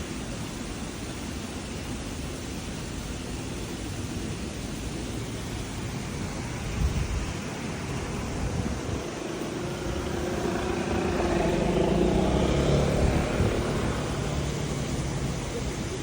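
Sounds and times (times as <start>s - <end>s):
background street noise: 0.0s - 16.0s
car driving past: 7.6s - 16.0s.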